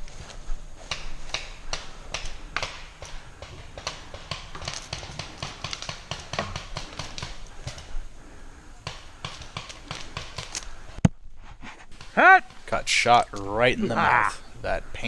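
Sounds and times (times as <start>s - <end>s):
paintball markers firing: 1.0s - 7.9s.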